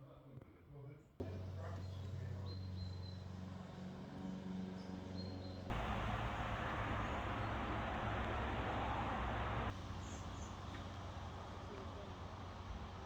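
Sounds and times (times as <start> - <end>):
steady low hum: 5.7 - 9.7
faint bird chirps: 5.7 - 10.6.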